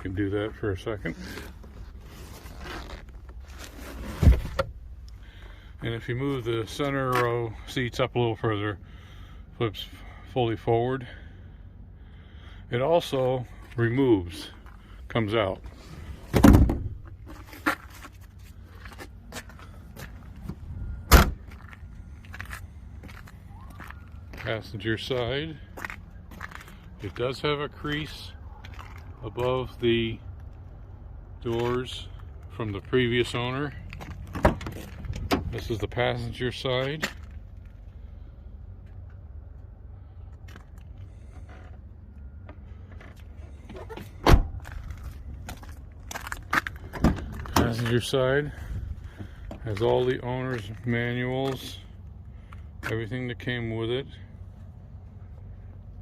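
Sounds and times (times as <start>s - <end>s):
heavy thud: 16.3s - 17.1s
car seat hardware clunks and clicks: 16.3s - 17.2s
loud door slam: 16.4s - 17.0s, 21.1s - 21.4s
car door latch clunk: 44.2s - 44.6s.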